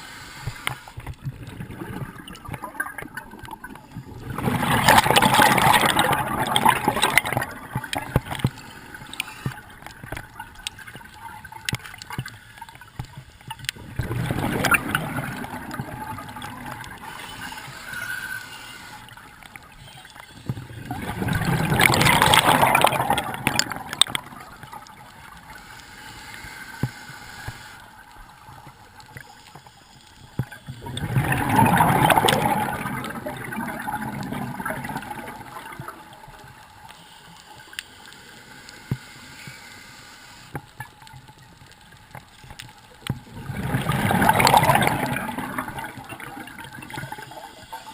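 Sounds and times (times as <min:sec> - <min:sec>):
regulator exhaling air bubbles: 0:04.2 - 0:08.4, 0:13.8 - 0:17.4, 0:30.8 - 0:35.9, 0:43.3 - 0:47.2
diver breathing: 0:17.0 - 0:19.2, 0:25.4 - 0:28.0.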